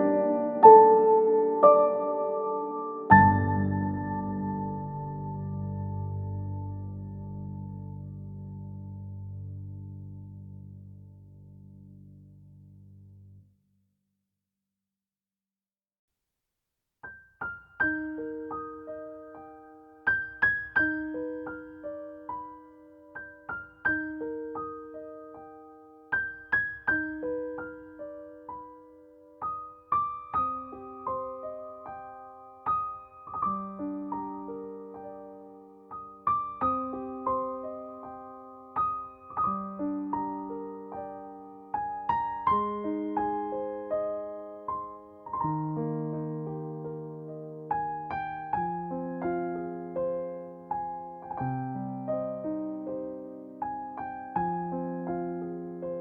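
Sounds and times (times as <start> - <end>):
gentle piano piece: 0.0 - 13.4, 17.0 - 56.0.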